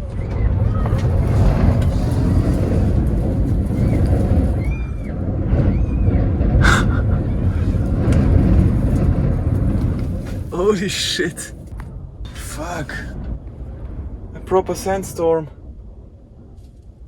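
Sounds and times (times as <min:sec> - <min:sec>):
sandstorm wind buffeting: 0:00.0 - 0:17.0
hissing wind gust: 0:00.5 - 0:16.5.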